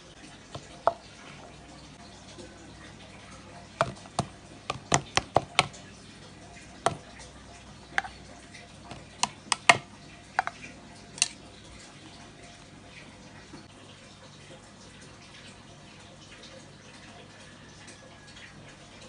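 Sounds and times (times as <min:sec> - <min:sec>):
sharp knocks of hard objects: 0:03.8 - 0:05.7, 0:08.9 - 0:10.6.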